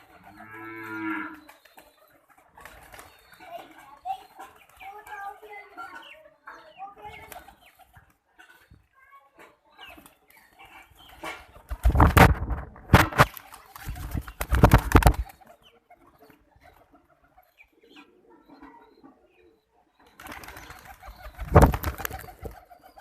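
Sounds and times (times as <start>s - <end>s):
faint bird sounds: 0.0s - 23.0s
pigeon wings flapping: 1.5s - 3.6s, 11.1s - 15.6s, 20.2s - 23.0s.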